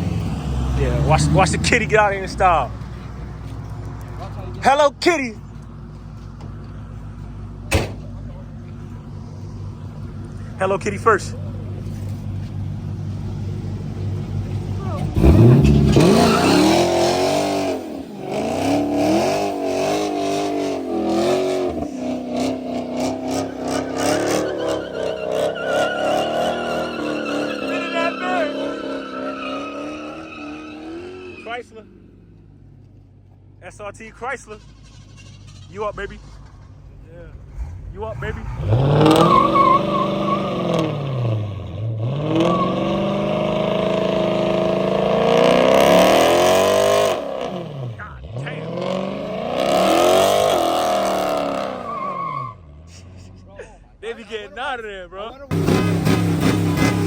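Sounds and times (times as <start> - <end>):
car engine revving: 0.0 - 31.8, 34.4 - 53.4, 55.5 - 57.0
tires squealing: 0.0 - 32.2, 34.2 - 54.9, 55.5 - 57.0.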